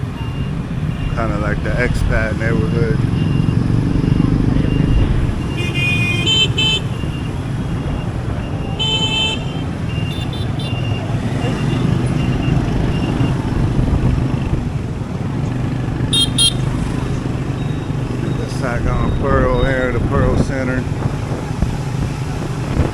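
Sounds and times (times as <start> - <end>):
rumble of engine road and wind: 0.0 - 22.9
vehicle horns tooting: 5.2 - 13.6, 16.1 - 19.4.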